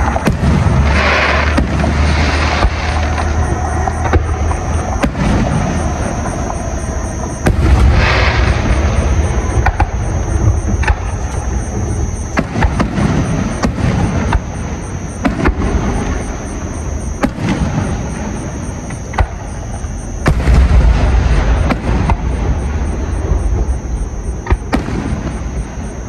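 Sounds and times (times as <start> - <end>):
low rumble of booms: 0.0 - 26.0.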